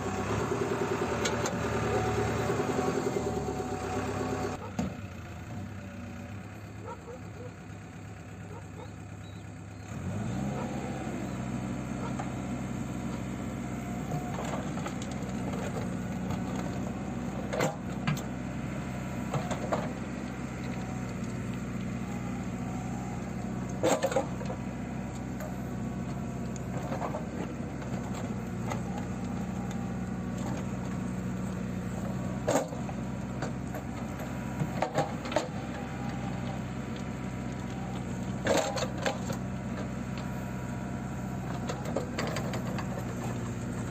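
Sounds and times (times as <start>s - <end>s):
diesel engine revving: 0.0s - 43.9s.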